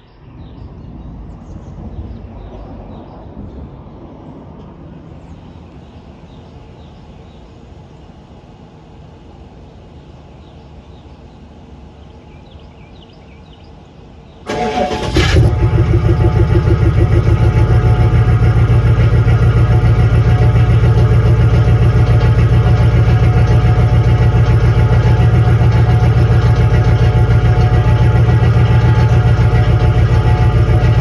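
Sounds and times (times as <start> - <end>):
truck engine idling: 14.4 - 31.0
starter motor cranking: 14.5 - 17.6.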